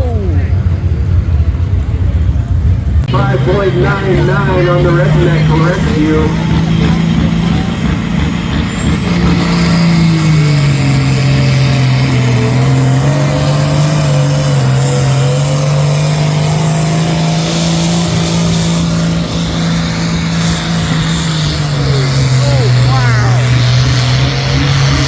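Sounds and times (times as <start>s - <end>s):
tractor engine running loudly: 0.0s - 25.0s.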